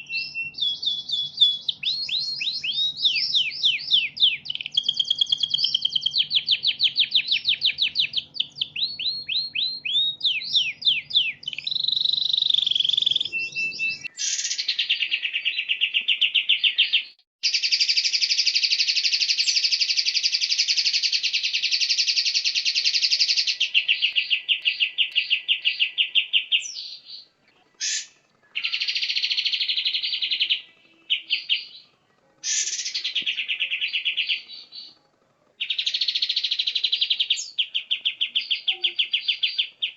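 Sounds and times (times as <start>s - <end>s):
songbird chirps: 0.0s - 39.9s
bird's fast trills: 17.4s - 31.8s, 32.4s - 34.8s.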